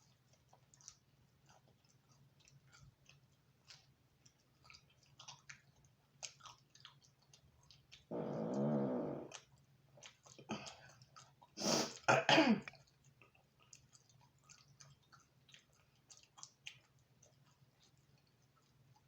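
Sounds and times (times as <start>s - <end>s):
chewing and mouth clicks: 0.0s - 19.0s
woman clearing throat: 12.1s - 12.7s.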